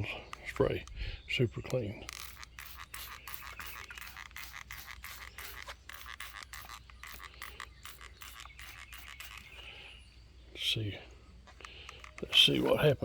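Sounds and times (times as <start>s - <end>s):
spray bottle hissing sprays: 2.1s - 9.6s.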